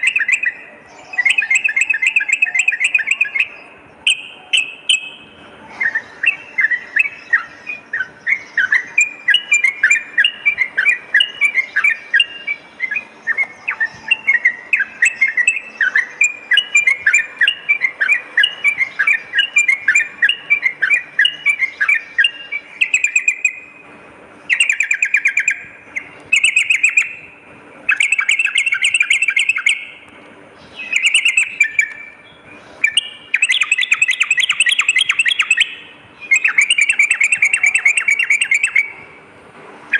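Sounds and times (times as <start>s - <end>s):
bulbul chirping notes: 0.0s - 23.8s, 30.8s - 39.1s.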